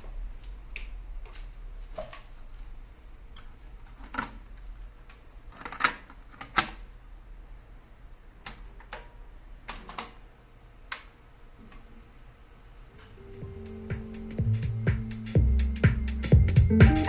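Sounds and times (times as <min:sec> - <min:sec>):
low steady hum: 0:06.9 - 0:17.0.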